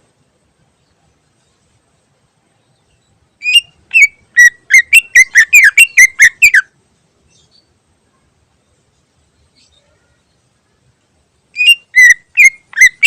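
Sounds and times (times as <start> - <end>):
bird whistling notes: 3.4 - 6.7, 11.6 - 13.0.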